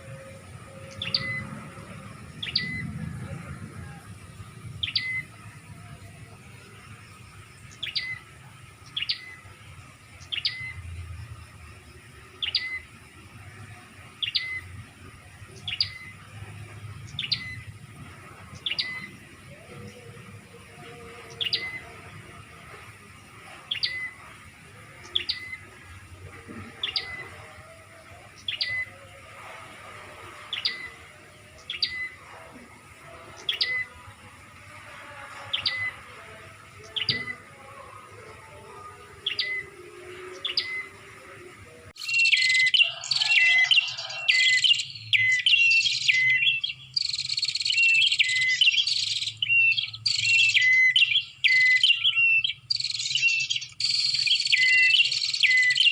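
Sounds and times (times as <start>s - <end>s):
bird call notes: 0.0s - 5.4s, 23.6s - 29.6s, 42.0s - 55.9s.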